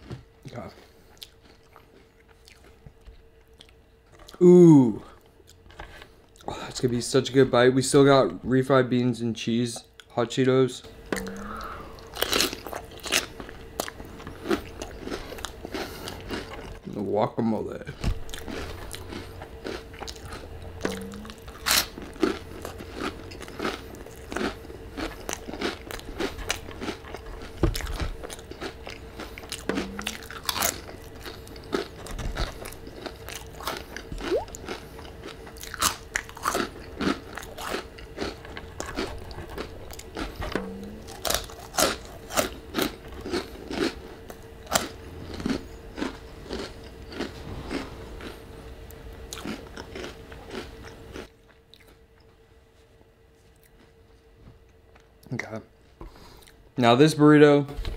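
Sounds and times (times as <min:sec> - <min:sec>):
crunchy chips being chewed: 0:00.0 - 0:04.4, 0:11.1 - 0:17.1, 0:17.9 - 0:52.3
faint steady hum: 0:00.0 - 0:57.9.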